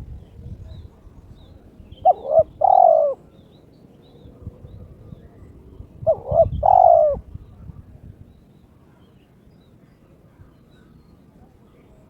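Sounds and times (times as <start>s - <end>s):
dove cooing: 2.0s - 3.3s, 6.0s - 7.3s.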